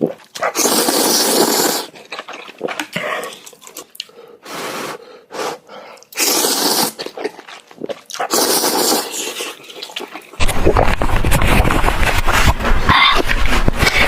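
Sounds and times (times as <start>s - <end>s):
mouth clicks and chewing smacks: 0.0s - 4.2s, 5.9s - 11.8s
noodles being slurped: 0.0s - 14.0s.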